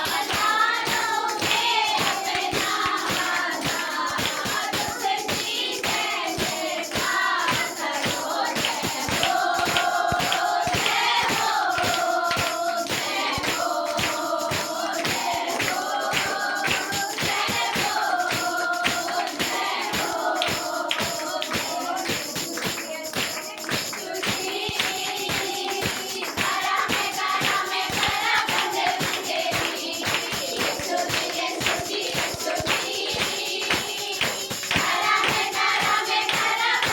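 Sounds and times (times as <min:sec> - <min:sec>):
group singing worship song: 0:00.0 - 0:36.9
steady percussion beat: 0:00.0 - 0:36.9.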